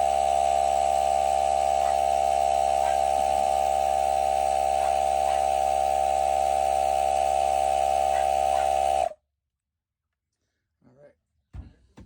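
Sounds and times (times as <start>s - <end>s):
electric air inflator droning: 0.0s - 9.2s.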